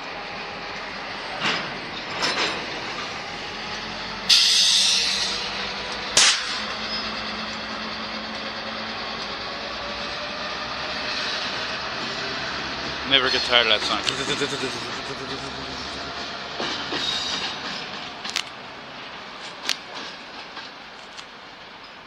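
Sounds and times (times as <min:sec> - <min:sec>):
locomotive engine and wheel rumble: 0:00.0 - 0:22.0.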